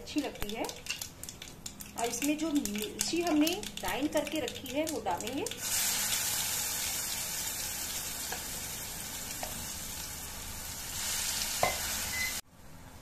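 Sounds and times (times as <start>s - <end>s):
paste sizzling in hot oil: 5.6s - 12.4s.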